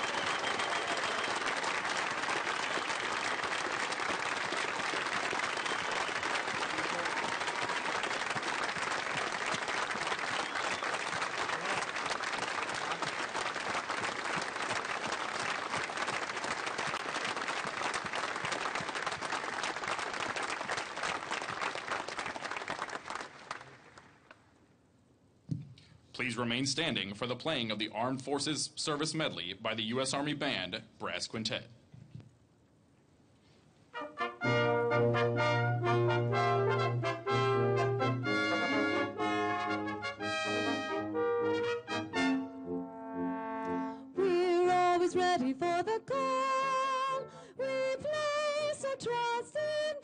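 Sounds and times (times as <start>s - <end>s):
audience applauding: 0.0s - 24.4s.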